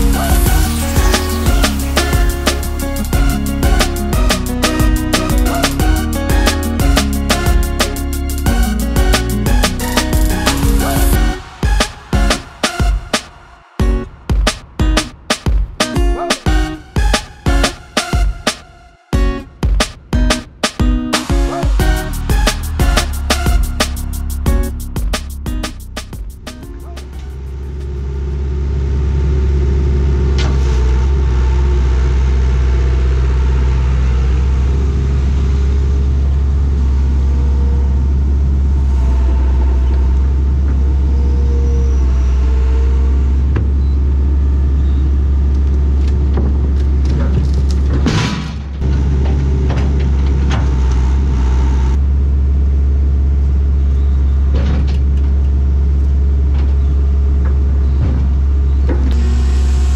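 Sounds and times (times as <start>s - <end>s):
excavator diesel engine running: 0.0s - 12.6s.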